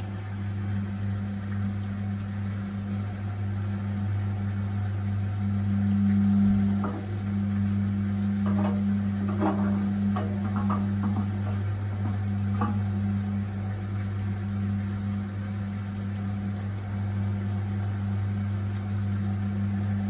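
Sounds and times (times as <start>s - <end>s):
washing machine drum spinning: 5.3s - 15.1s.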